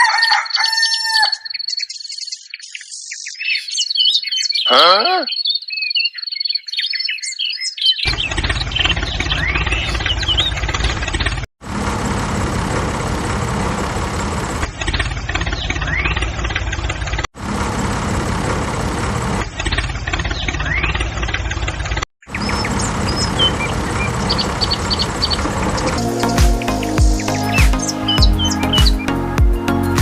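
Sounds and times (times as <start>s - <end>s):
faint bird chirps: 0.6s - 10.6s
engine running: 8.1s - 30.0s.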